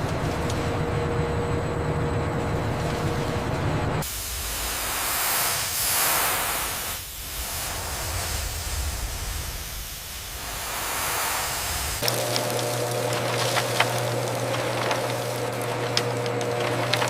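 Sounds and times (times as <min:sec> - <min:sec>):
steady rushing hiss: 0:04.0 - 0:17.0.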